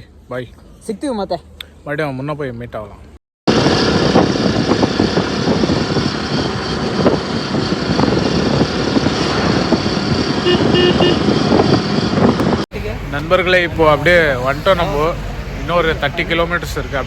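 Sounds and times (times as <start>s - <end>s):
wind and road noise: 0.0s - 17.0s
vehicle horn beeps: 10.4s - 11.3s.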